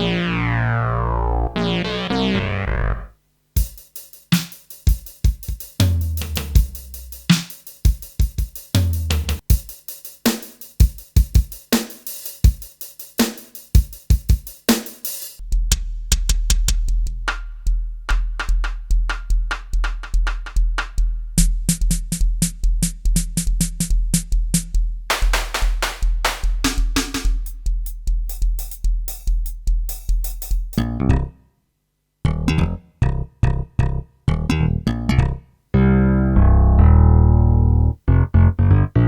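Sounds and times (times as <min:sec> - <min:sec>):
synthesizer tone with falling sweeps: 0:00.0 - 0:03.1
deep synth bass: 0:00.0 - 0:03.2, 0:32.5 - 0:39.0
synthesized drum pattern: 0:00.0 - 0:30.8.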